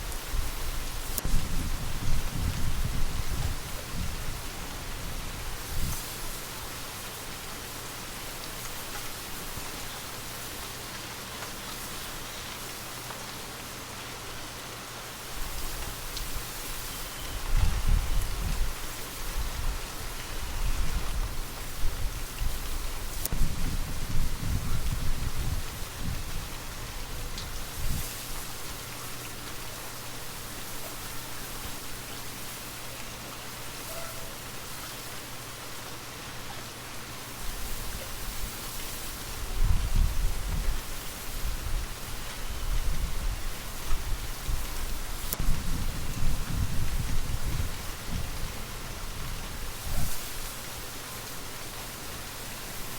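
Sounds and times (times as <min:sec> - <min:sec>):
low rumble of wind: 0:00.0 - 0:52.9
steady rain falling: 0:00.0 - 0:52.9.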